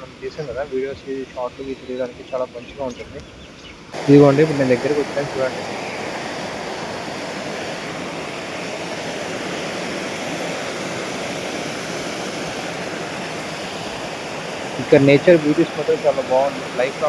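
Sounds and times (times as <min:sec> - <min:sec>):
water rushing over rocks: 0:04.0 - 0:17.0.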